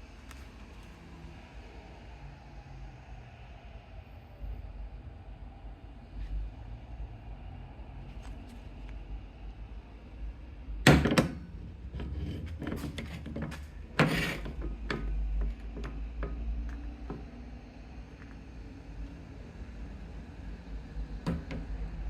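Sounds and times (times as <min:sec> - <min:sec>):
tools clicking and tapping: 0:12.0 - 0:17.3.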